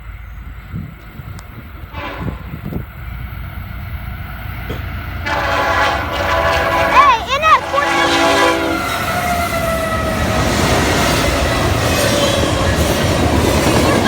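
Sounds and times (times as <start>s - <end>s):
locomotive rumble: 0.0s - 14.0s
locomotive air horn: 1.9s - 2.6s, 5.2s - 10.4s.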